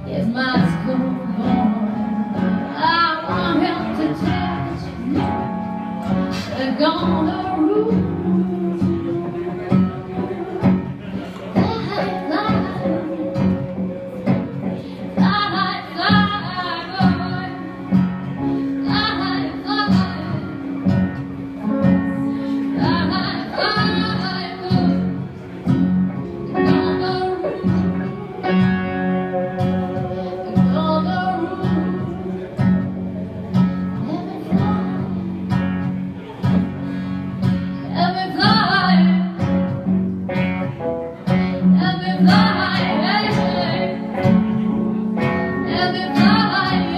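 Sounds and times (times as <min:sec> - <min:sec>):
person singing: 0:00.0 - 0:25.2, 0:26.3 - 0:32.7, 0:41.4 - 0:46.9
electric guitar playing blues: 0:00.0 - 0:46.9.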